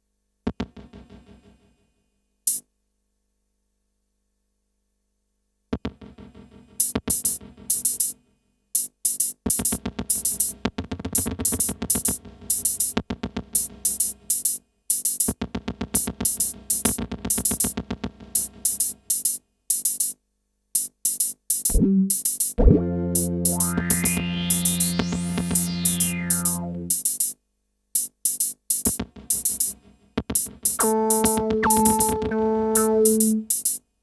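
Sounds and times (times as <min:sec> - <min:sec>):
drum-machine beat with hi-hat: 0:05.8 - 0:08.2, 0:08.8 - 0:20.2, 0:20.8 - 0:27.4, 0:28.0 - 0:33.9
low synth tone with filter sweep: 0:21.7 - 0:26.9, 0:30.8 - 0:33.4
pitched synth notes: 0:21.7 - 0:27.0, 0:30.4 - 0:33.6.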